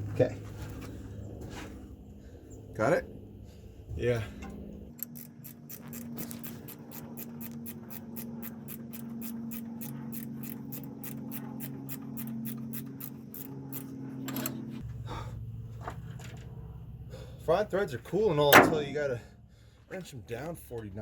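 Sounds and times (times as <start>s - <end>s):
ratchet wrench clicking: 4.9s - 14.6s.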